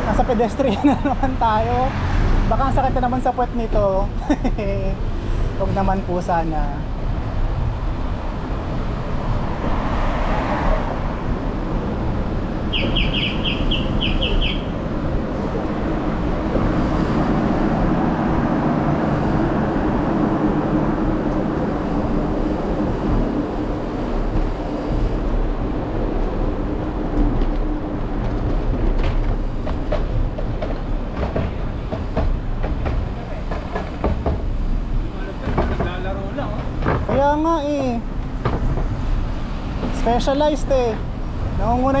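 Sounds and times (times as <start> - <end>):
bicycle rumble on rough lane: 0.0 - 42.0
road traffic: 0.0 - 42.0
high chirps: 12.7 - 14.8.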